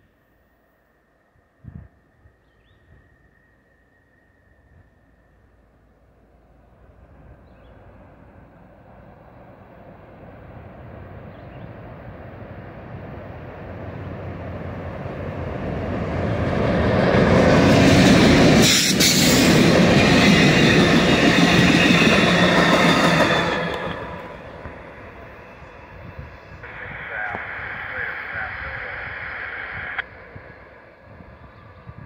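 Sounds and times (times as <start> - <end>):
diesel locomotive passing: 0.0 - 32.0
train wheels rolling on rails: 7.1 - 31.9.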